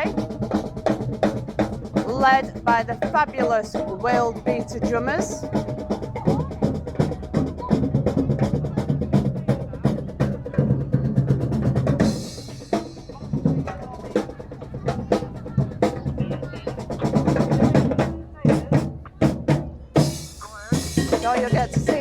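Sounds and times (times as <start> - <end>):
bass drums: 0.0 - 22.0
street drum band playing: 0.0 - 22.0
snare drum: 16.2 - 22.0.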